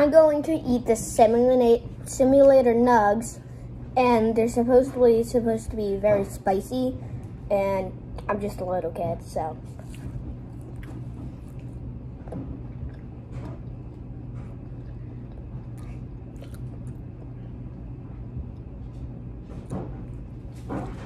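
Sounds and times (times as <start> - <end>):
steady low hum: 0.0 - 21.0
chewing sounds: 9.6 - 19.0.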